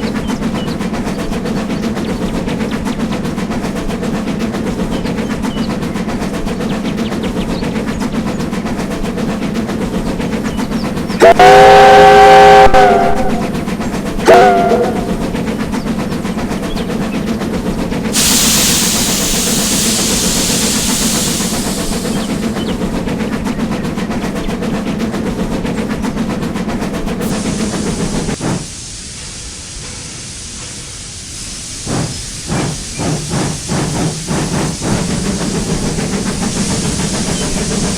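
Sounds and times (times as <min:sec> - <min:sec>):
small train locomotive clattering: 0:00.0 - 0:37.9
train whistle: 0:11.2 - 0:13.6, 0:14.2 - 0:15.3
broad hiss: 0:18.0 - 0:23.2, 0:27.2 - 0:37.9.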